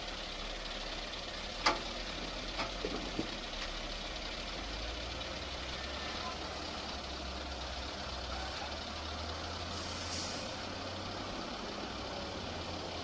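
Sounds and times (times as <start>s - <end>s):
heavy machine engine running: 0.0s - 13.0s
burst of hiss: 9.7s - 10.6s.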